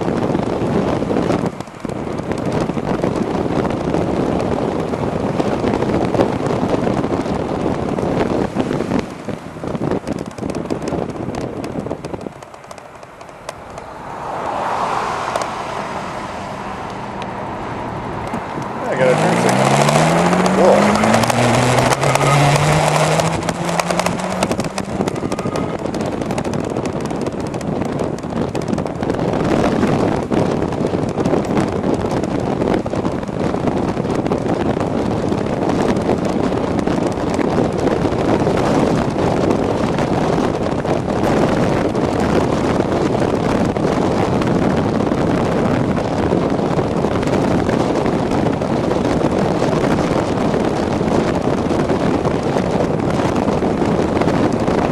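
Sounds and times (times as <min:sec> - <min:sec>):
e-bike road noise: 0:00.0 - 0:54.9
wind rushing over microphone: 0:00.0 - 0:54.9
rising whine: 0:12.4 - 0:27.3.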